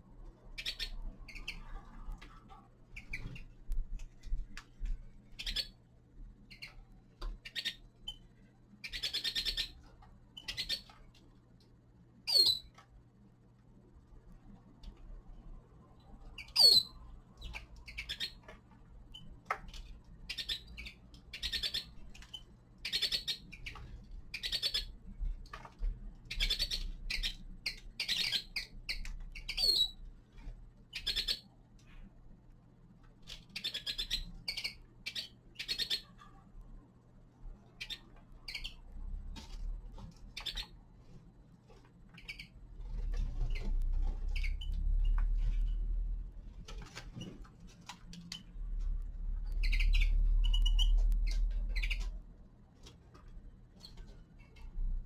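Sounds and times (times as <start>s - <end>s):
steady low hum: 0.0s - 55.0s
finches chirping: 0.5s - 1.7s, 2.9s - 3.6s, 5.2s - 5.8s, 6.5s - 11.0s, 12.3s - 12.7s, 16.3s - 19.3s, 20.2s - 25.0s, 26.2s - 30.0s, 30.9s - 31.5s, 33.3s - 36.2s, 37.8s - 38.9s, 40.3s - 40.8s, 42.1s - 45.9s, 49.4s - 52.2s.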